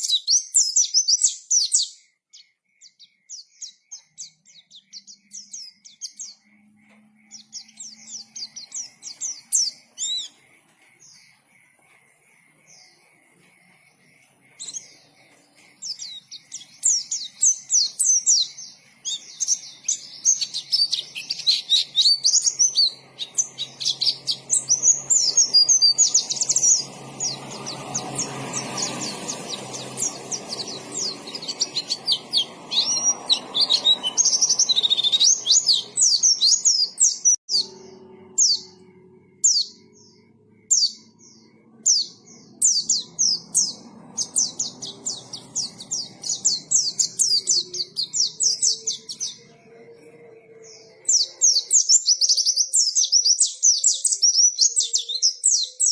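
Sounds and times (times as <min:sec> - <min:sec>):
bird chirping and warbling: 0:00.0 - 0:55.9.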